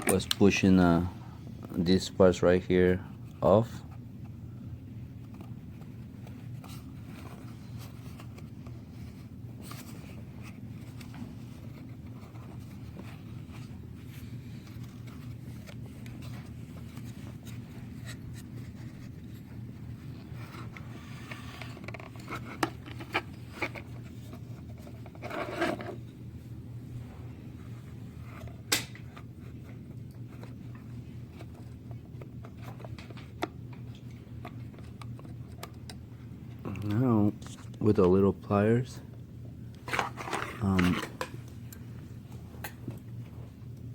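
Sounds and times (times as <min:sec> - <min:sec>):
steady low hum: 0:00.0 - 0:43.9
hands scraping plastic parts: 0:05.2 - 0:26.0.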